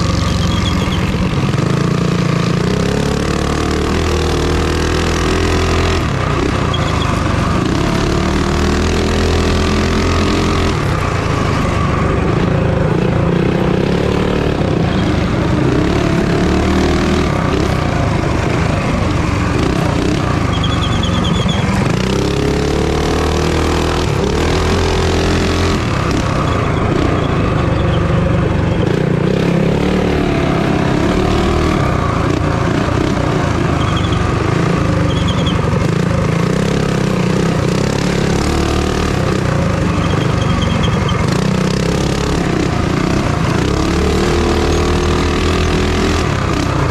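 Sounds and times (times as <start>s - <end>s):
minibike engines revving: 0.0s - 46.9s.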